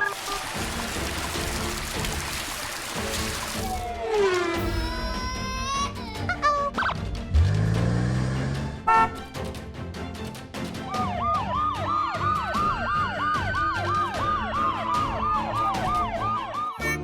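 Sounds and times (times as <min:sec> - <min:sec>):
upbeat background music: 0:00.0 - 0:17.0
cartoon police siren: 0:03.6 - 0:05.1, 0:10.9 - 0:17.0.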